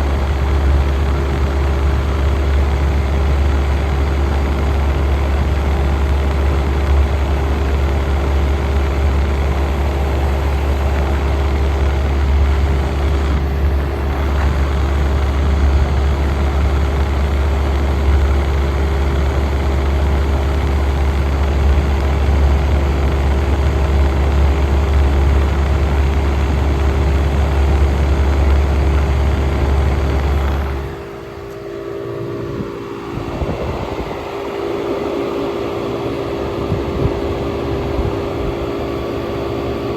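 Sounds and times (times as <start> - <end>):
air conditioner deep hum: 0.0 - 39.9
steady higher hum: 0.0 - 39.9
falling whine winding down: 7.6 - 39.9.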